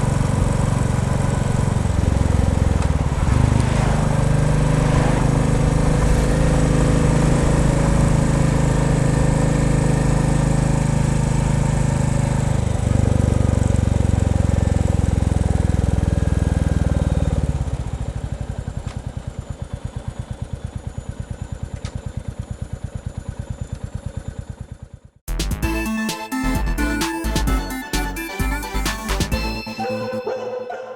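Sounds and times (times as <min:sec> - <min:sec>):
motorcycle engine running: 0:00.0 - 0:25.2.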